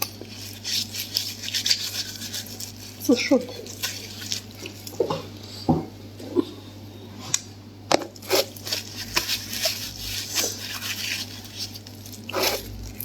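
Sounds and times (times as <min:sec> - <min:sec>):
chewing with wet mouth clicks: 0:03.6 - 0:05.0, 0:11.5 - 0:13.0.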